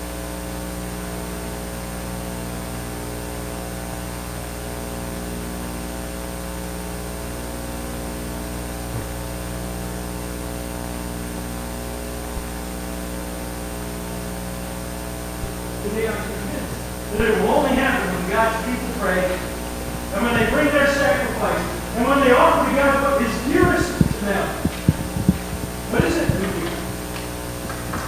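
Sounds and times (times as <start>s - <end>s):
electrical mains hum and buzz: 0.0s - 28.0s
recording hiss: 15.3s - 28.0s.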